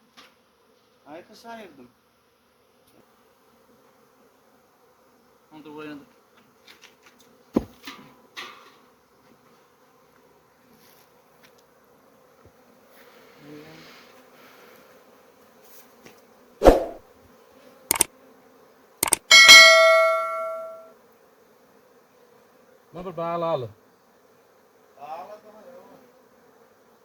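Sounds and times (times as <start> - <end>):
metal object clanging: 19.0 - 20.8
sharp knocks: 19.0 - 20.8.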